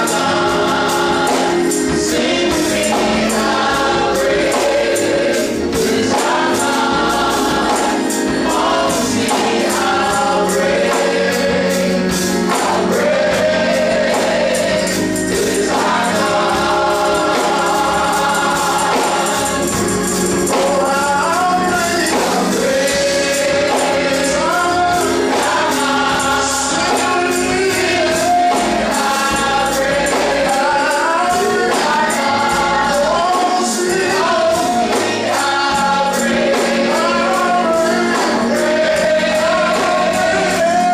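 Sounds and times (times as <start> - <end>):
gospel choir singing: 0.0 - 40.9
instrumental accompaniment: 0.0 - 40.9
tambourine beat: 0.0 - 40.9.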